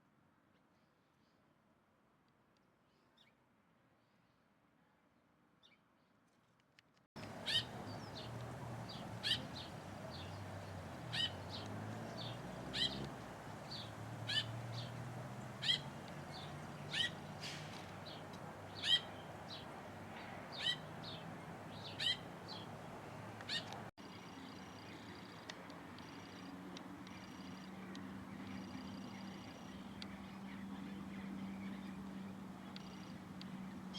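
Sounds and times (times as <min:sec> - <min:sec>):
short sharp bird calls: 0:07.2 - 0:23.9.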